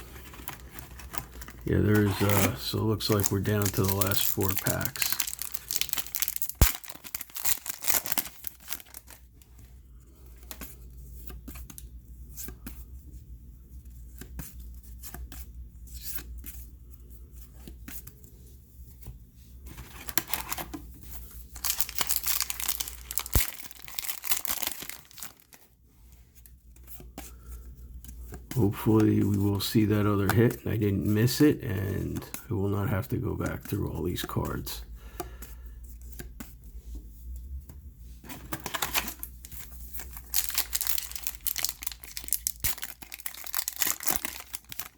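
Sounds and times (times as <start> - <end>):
cards rustling: 0.0 - 12.9, 19.0 - 36.7, 38.2 - 44.9
foil wrappers tearing and crinkling: 0.2 - 9.2, 21.5 - 25.6, 38.5 - 44.9.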